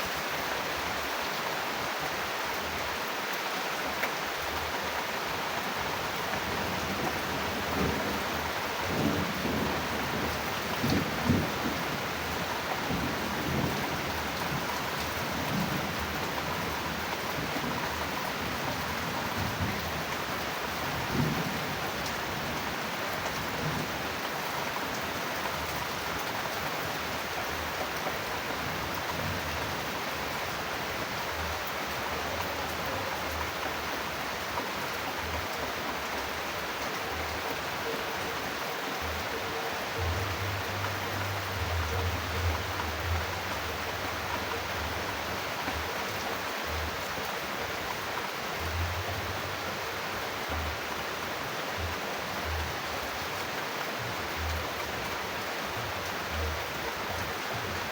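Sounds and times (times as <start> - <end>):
steady rain falling: 0.0 - 57.9
thunder rumbling: 6.8 - 12.1.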